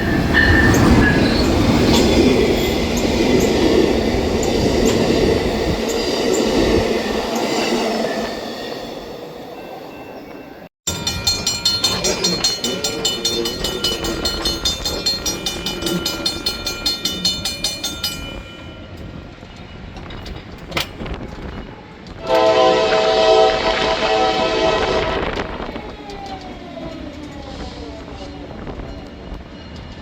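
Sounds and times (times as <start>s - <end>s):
train wheels clicking over rail joints: 10.9s - 22.8s, 25.2s - 30.0s.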